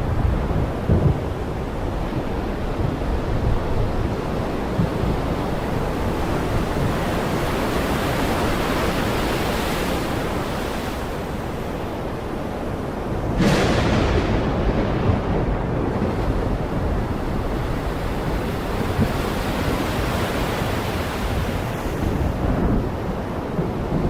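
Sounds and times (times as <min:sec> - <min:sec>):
heavy rain pouring: 0:12.0 - 0:24.0.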